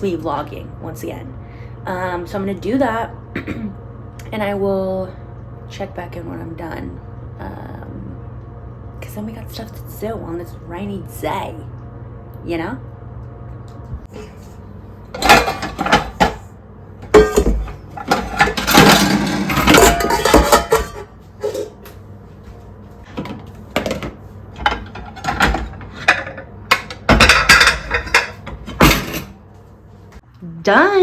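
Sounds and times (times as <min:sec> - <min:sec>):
dishes clinking in sink: 0:15.2 - 0:16.4, 0:17.0 - 0:21.9, 0:23.1 - 0:29.3.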